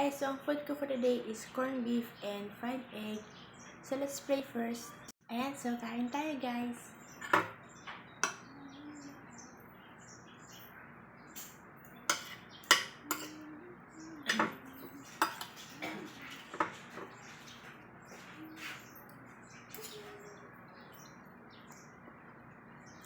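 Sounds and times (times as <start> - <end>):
faint bird chirps: 6.7 - 23.0
cutlery clinking on a plate: 7.2 - 7.6, 11.4 - 13.4, 14.3 - 17.6, 19.7 - 20.2.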